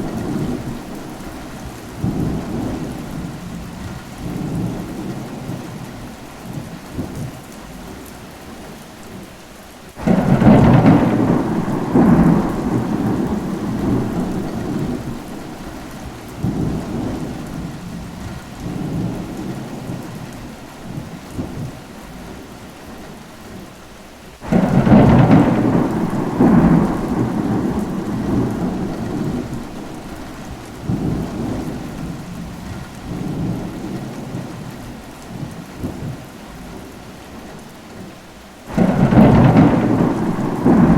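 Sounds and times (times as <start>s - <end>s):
rolling thunderclaps: 0.0s - 5.8s, 10.0s - 20.3s, 24.4s - 36.9s, 38.7s - 40.9s
steady rain falling: 0.0s - 40.9s.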